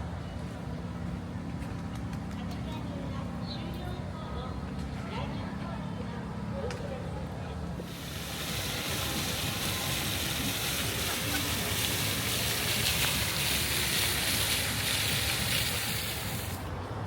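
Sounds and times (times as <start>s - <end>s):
high-pitched rushing hiss: 7.8s - 16.7s.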